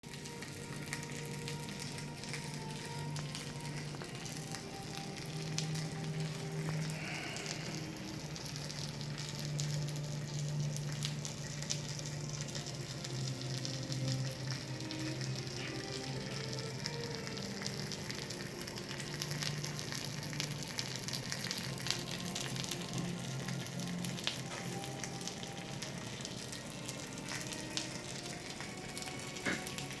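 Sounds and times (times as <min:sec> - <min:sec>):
pork sizzling on grill: 0:00.0 - 0:30.0
fat crackling pops: 0:01.0 - 0:08.5, 0:25.8 - 0:30.0.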